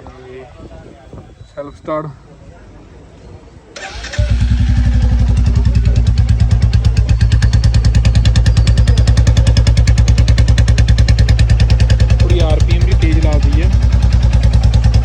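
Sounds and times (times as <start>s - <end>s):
engine starter cranking: 3.8s - 10.0s
motorcycle engine idling: 3.8s - 15.0s.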